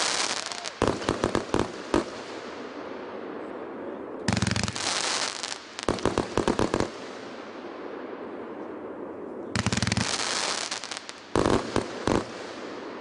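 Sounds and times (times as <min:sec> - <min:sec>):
firework bangs: 0:00.0 - 0:02.8, 0:04.3 - 0:08.1, 0:09.6 - 0:13.0.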